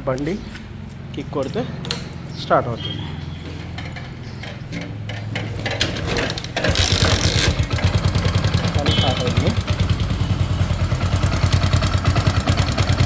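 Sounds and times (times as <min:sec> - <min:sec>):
motorcycle engine idling: 0:06.4 - 0:13.0.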